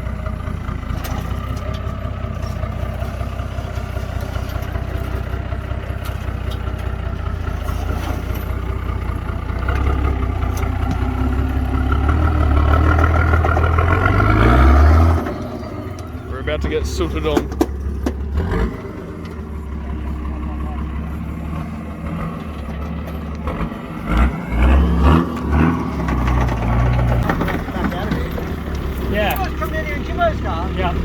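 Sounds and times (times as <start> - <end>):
car engine running at low revs: 0.0 - 31.0.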